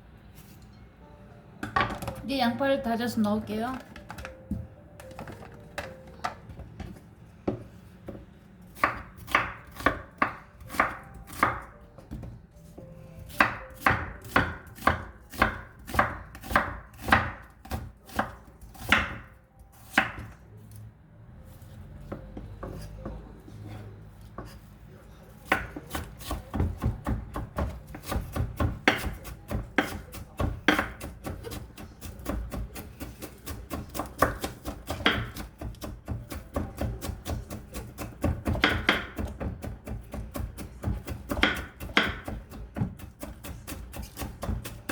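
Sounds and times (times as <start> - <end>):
knife chopping on cutting board: 8.8 - 11.7, 13.3 - 20.4, 25.4 - 44.9.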